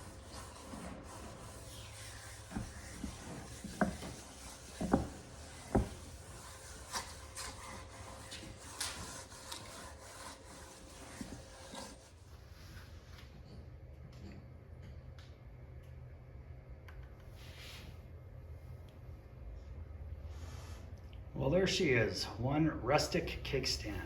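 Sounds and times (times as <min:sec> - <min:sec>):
cloth rubbing wood: 0:00.0 - 0:12.0.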